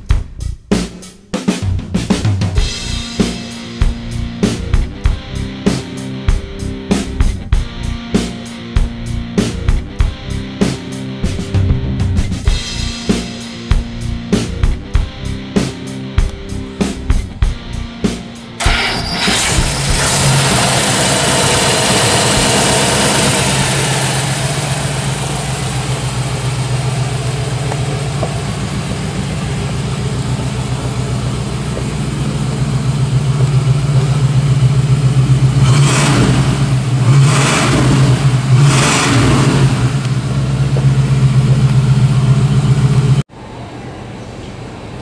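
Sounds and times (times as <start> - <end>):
engine revving: 18.1 - 43.3
car engine idling: 18.6 - 43.3.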